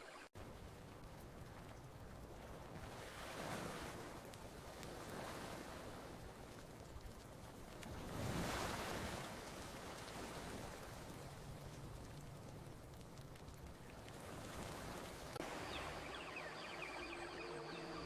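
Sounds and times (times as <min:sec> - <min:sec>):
faint campfire crackles: 0:00.0 - 0:18.0
ocean waves washing ashore: 0:00.0 - 0:18.0.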